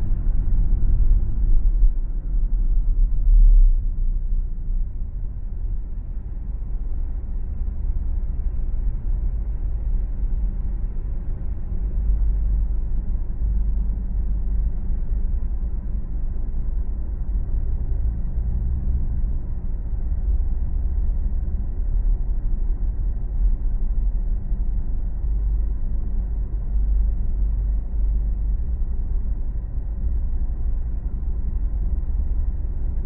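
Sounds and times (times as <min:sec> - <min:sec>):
car driving on road: 0:00.0 - 0:24.3.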